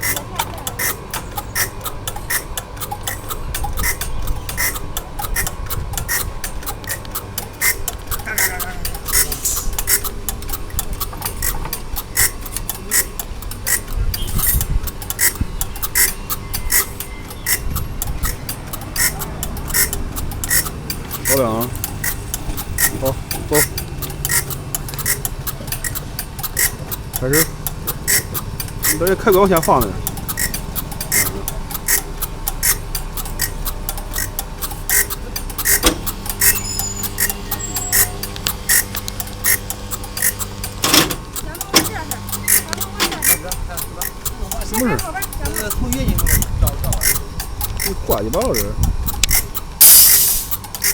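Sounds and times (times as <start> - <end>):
mechanical ticking: 0.0 - 50.9
sharp click-buzz: 0.0 - 50.9.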